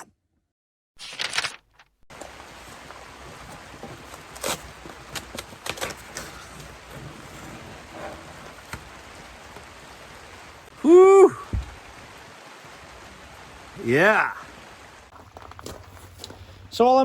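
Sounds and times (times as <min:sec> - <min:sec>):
steady rain hiss: 0:02.1 - 0:17.0
panel cracking and snapping: 0:04.4 - 0:06.6.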